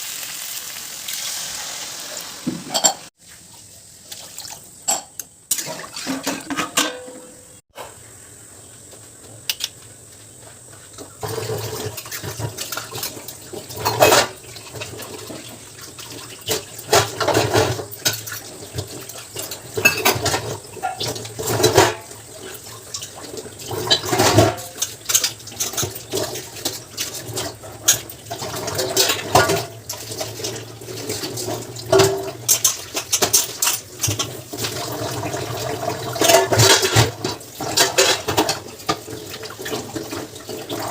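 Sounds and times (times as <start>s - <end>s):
dishes and utensils clattering: 2.4s - 3.1s, 4.8s - 8.0s, 11.0s - 40.9s.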